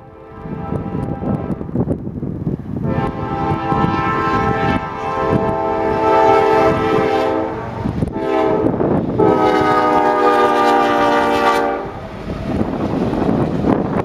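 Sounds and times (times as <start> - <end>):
locomotive air horn blasts: 0.0 - 1.8, 2.8 - 12.0
train rumbling past: 0.0 - 14.0
wheel and rail noise: 0.0 - 14.0.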